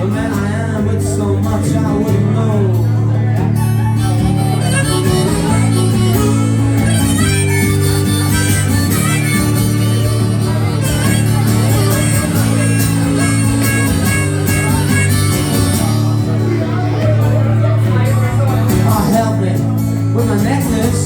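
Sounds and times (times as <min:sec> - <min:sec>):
strummed guitar: 0:00.0 - 0:21.0
harmonica melody: 0:03.6 - 0:18.1.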